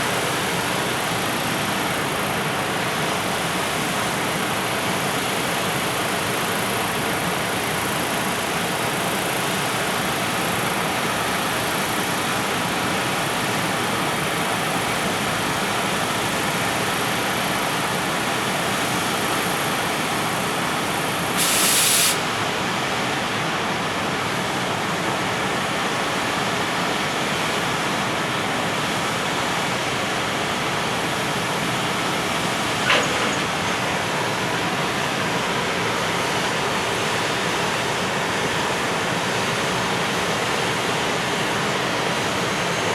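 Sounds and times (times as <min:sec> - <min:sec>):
short sharp hiss: 0:21.4 - 0:22.4
freight train rolling past: 0:31.2 - 0:38.8
single click: 0:32.8 - 0:33.5.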